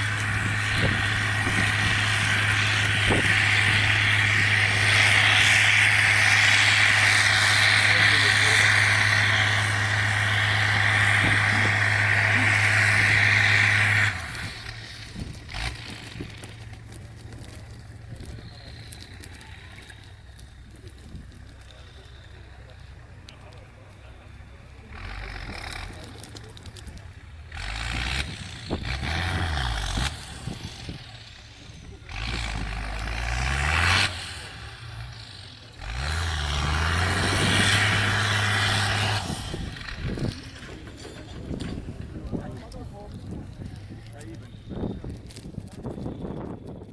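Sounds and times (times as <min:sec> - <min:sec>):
diesel truck engine running: 0:00.0 - 0:46.9.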